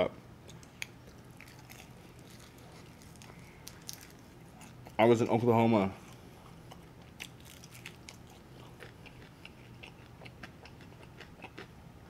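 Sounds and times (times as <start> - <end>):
person chewing chicken: 0.5 - 5.0, 6.0 - 11.8.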